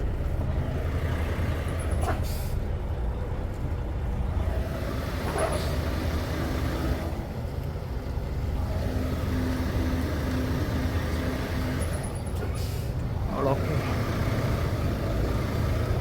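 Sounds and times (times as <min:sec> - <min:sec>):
diesel truck engine rumbling: 0:00.0 - 0:16.0.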